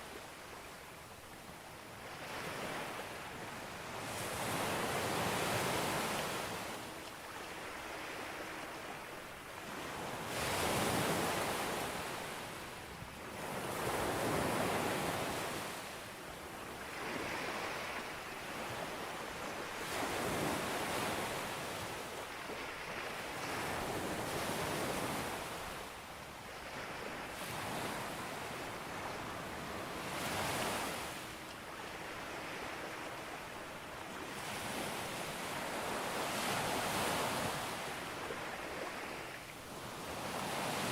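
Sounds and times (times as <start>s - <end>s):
sea waves breaking on beach: 16.6s - 40.9s.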